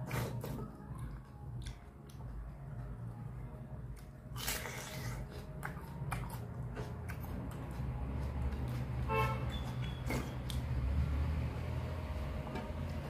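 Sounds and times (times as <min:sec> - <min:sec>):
wet chewing and lip smacks: 0:00.0 - 0:02.9, 0:03.9 - 0:08.9, 0:09.5 - 0:10.7
low traffic rumble: 0:00.0 - 0:13.0
vehicle horn toot: 0:09.1 - 0:09.8.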